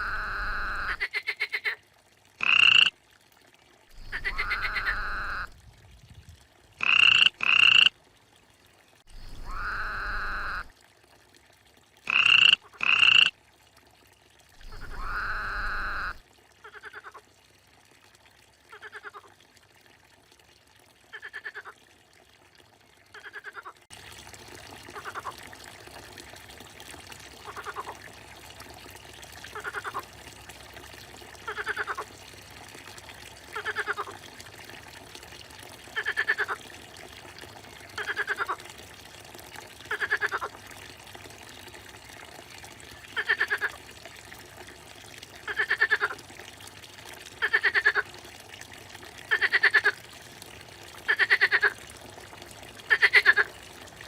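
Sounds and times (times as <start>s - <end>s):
frog croaking: 0.0s - 1.8s, 2.4s - 2.9s, 4.0s - 5.5s, 6.8s - 7.9s, 9.2s - 10.7s, 12.1s - 13.3s, 14.6s - 17.2s
water trickling: 0.0s - 54.0s.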